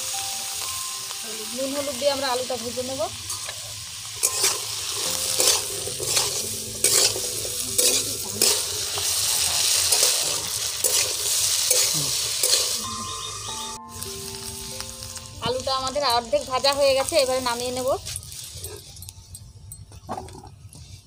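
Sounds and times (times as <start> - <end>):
potatoes sizzling in a pan: 0.0 - 18.6
spatula scraping and knocking pan: 4.2 - 9.1.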